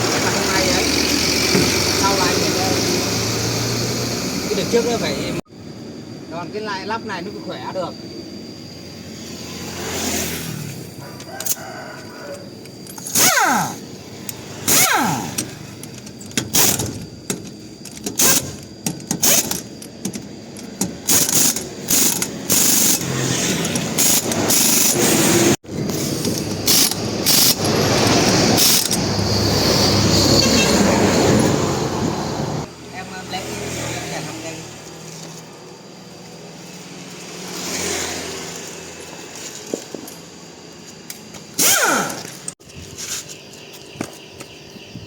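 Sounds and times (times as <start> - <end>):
steady mechanical noise: 0.0 - 45.0
falling whines: 6.1 - 19.8
pneumatic impact wrench bursts: 12.9 - 19.8, 20.7 - 30.0, 41.4 - 42.6.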